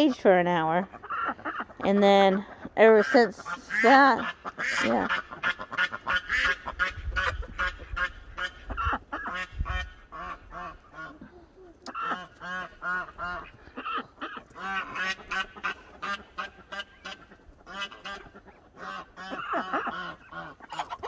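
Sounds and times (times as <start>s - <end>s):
ducks and geese honking and quacking: 0.0s - 21.0s.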